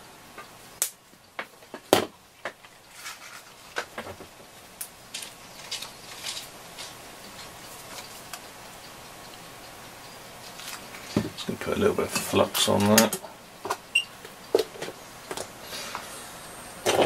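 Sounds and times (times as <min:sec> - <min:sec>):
small tools clicking and tapping: 0:04.8 - 0:08.5, 0:12.1 - 0:15.5
scratchy rustles: 0:05.1 - 0:08.3.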